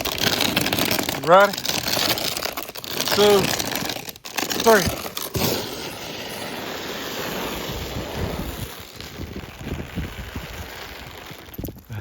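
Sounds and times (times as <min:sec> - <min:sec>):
sled sliding over snow: 0:00.0 - 0:12.0
wind on microphone: 0:07.7 - 0:12.0.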